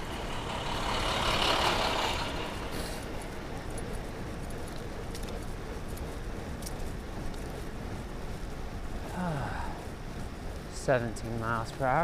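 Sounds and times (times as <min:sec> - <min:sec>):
light rattling clicks: 0:03.0 - 0:07.7.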